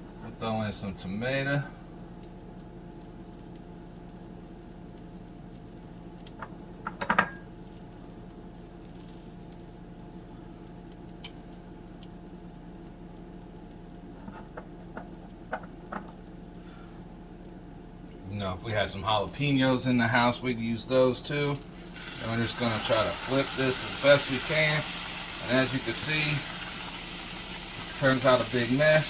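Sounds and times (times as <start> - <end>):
kitchen hum: 6.2 - 29.0.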